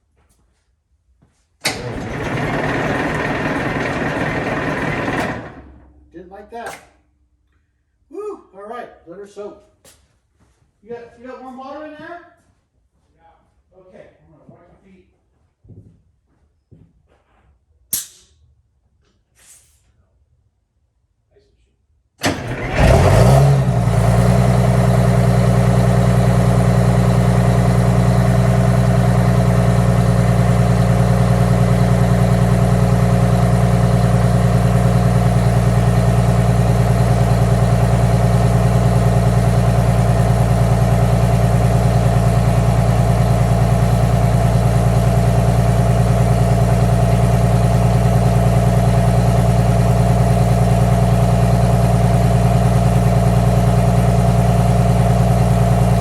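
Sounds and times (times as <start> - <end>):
diesel engine idling: 1.7 - 6.1, 22.2 - 56.0.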